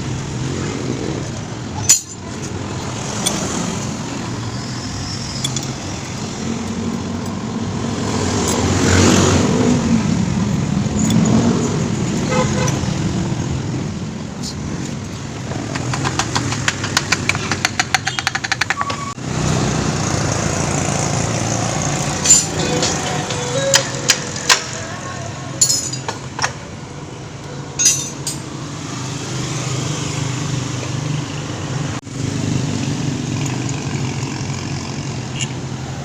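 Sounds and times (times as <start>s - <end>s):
road traffic passing: 0.0s - 36.0s.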